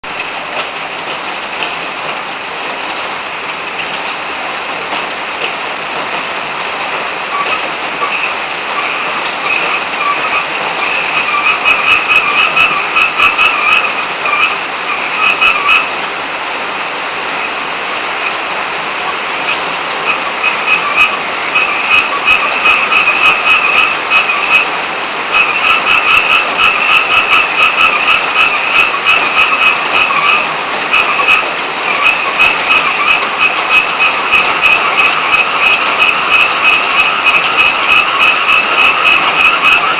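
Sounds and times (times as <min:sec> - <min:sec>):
rain hissing: 0:00.0 - 0:39.9
frogs croaking: 0:06.8 - 0:16.0, 0:17.2 - 0:39.9.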